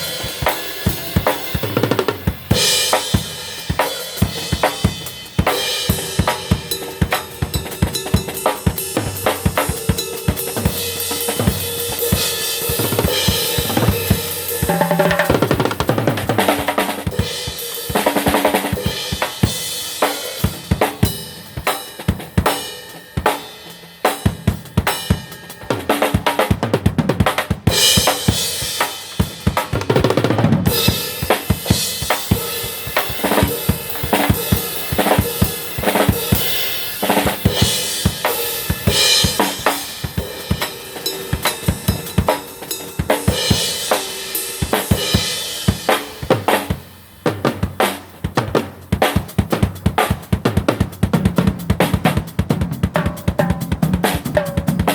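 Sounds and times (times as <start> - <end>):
cymbal wash: 0.0 - 15.9
drum kit playing: 0.0 - 54.9.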